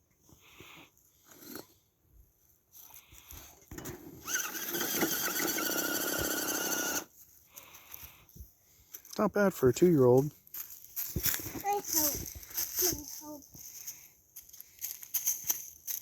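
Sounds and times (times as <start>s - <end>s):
toy car motor whining: 3.7s - 7.1s.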